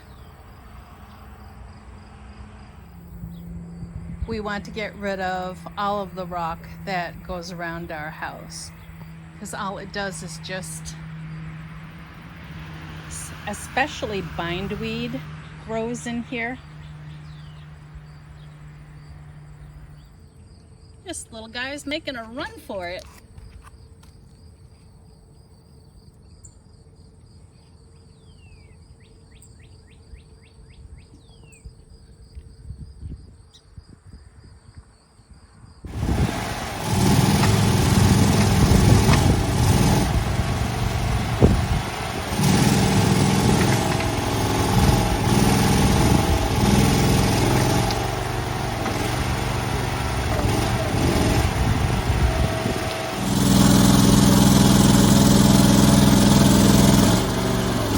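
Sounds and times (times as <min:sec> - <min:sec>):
loud engine running: 0:02.5 - 0:20.0, 0:21.1 - 0:23.2, 0:35.9 - 0:57.9
bird chirps: 0:15.1 - 0:35.3.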